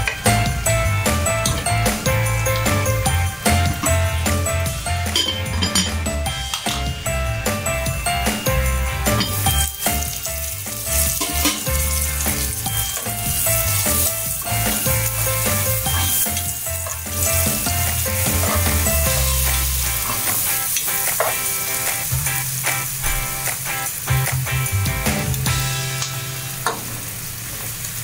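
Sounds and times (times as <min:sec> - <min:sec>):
background music with bass: 0:00.0 - 0:26.5
garlic and onion sizzling in oil: 0:06.3 - 0:28.0
spatula stirring in pan: 0:09.3 - 0:22.1.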